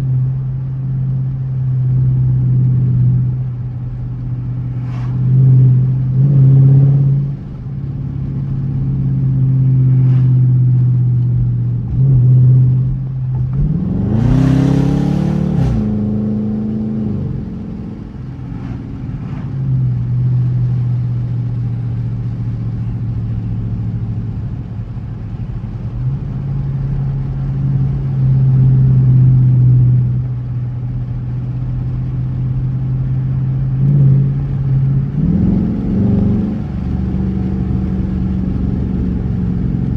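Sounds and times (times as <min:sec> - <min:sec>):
car engine droning: 0:00.0 - 0:39.9
engine revving: 0:11.9 - 0:17.8, 0:35.1 - 0:39.9.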